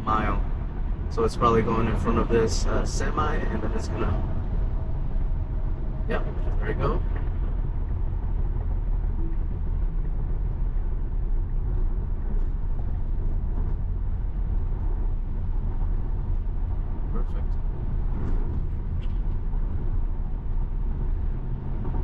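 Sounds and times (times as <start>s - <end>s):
road rumble and tyre noise: 0.0s - 22.0s.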